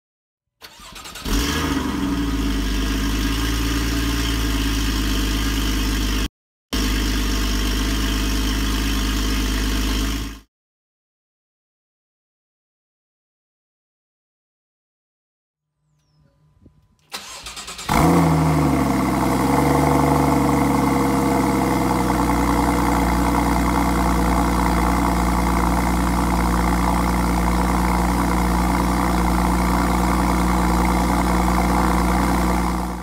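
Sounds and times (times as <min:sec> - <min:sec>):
car engine revving and idling: 0:01.2 - 0:10.4, 0:17.4 - 0:33.0.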